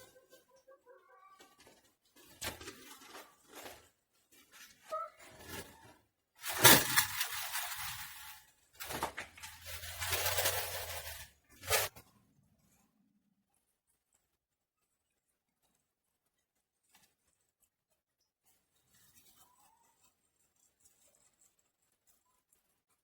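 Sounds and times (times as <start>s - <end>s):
rustling crackling noise: 0.0s - 12.9s, 13.5s - 23.0s.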